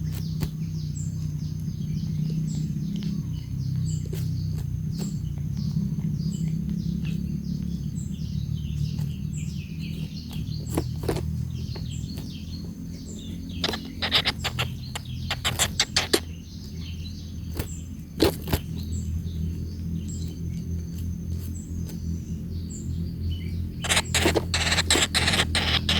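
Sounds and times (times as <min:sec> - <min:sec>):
birds chirping and twittering: 0:00.0 - 0:25.9
steady low hum: 0:11.4 - 0:18.1, 0:18.8 - 0:25.9
sharp taps: 0:13.6 - 0:16.3, 0:23.8 - 0:25.9.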